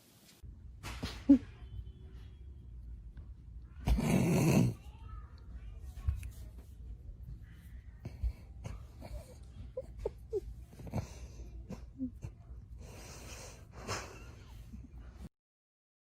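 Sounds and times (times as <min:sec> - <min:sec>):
cat purring: 0:03.8 - 0:04.8.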